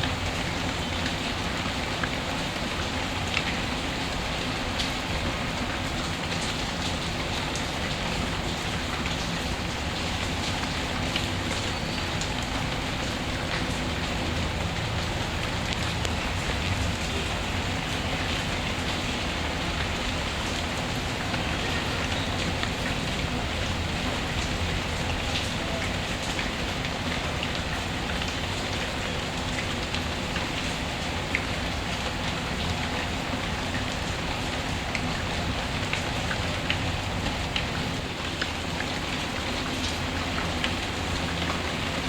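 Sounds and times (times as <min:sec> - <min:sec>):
rain falling: 0:00.0 - 0:42.0.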